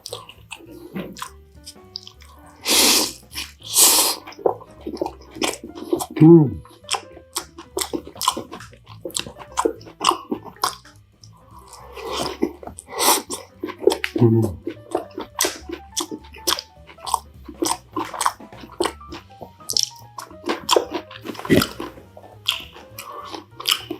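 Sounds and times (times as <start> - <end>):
chewing and crunching food: 0.0 - 23.9
wet mouth clicks: 0.0 - 23.9
person humming mm: 6.1 - 7.0, 11.5 - 14.7.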